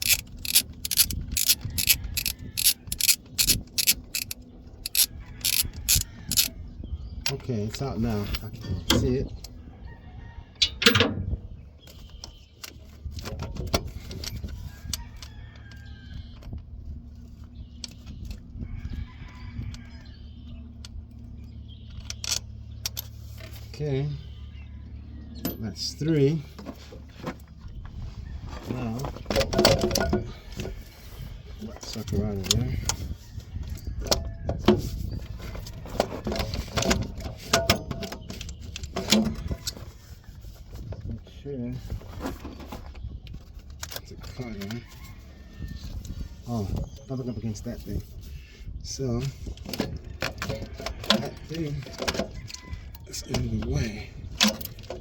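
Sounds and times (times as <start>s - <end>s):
metal clicks of hand tools: 0.0s - 6.5s.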